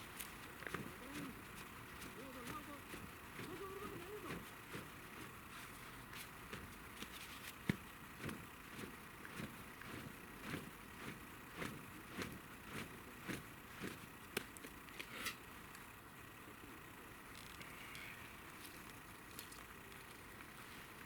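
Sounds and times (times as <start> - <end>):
footsteps on forest floor: 0.0 - 14.8, 18.4 - 21.0
twigs snapping underfoot: 17.3 - 20.7.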